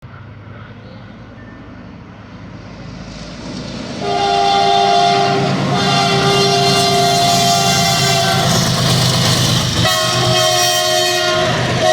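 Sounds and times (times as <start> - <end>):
freight train rumbling: 0.0 - 11.9
locomotive horn: 4.0 - 11.9.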